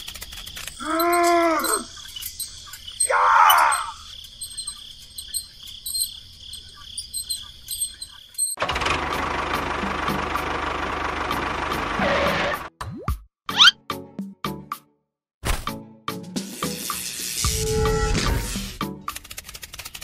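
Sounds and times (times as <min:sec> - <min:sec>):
faint insect-like chirping: 0:00.0 - 0:08.6.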